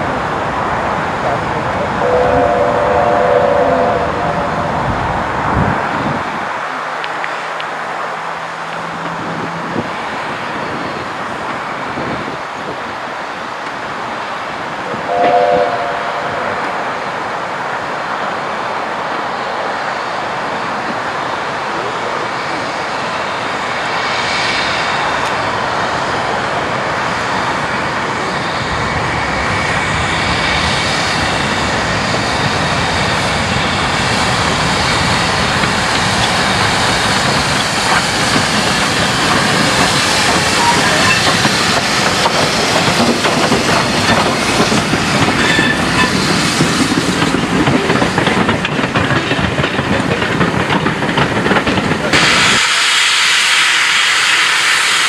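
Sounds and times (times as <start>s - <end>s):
steam train running on rails: 0.0s - 55.0s
wheels clicking over rail joints: 35.4s - 52.3s.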